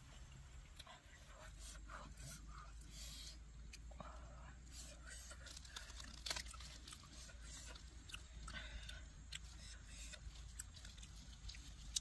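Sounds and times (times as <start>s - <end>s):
person chewing food: 4.7s - 12.0s.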